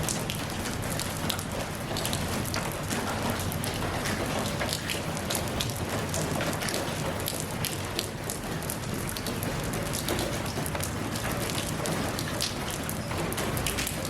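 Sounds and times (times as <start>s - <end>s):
rain drops pattering: 0.0s - 14.0s.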